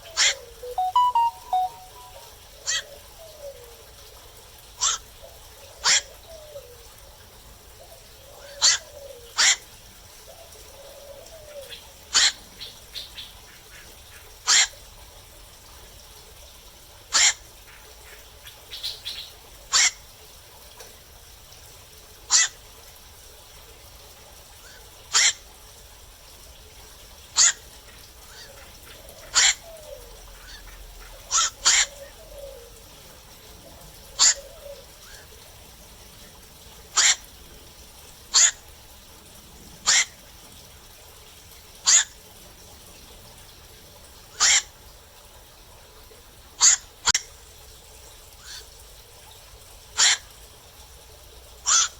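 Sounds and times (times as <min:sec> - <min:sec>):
herons calling: 0:00.0 - 0:02.1, 0:29.3 - 0:32.7, 0:34.1 - 0:34.8, 0:44.4 - 0:44.7, 0:51.7 - 0:51.9.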